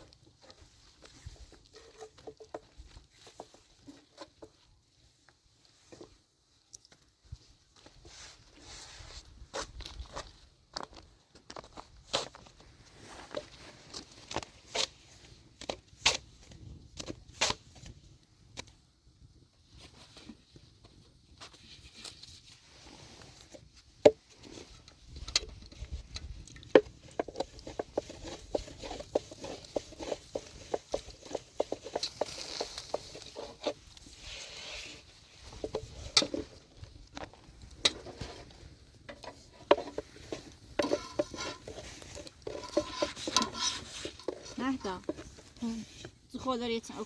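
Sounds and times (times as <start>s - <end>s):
objects tapping and clattering: 24.0s - 33.8s, 35.4s - 45.5s.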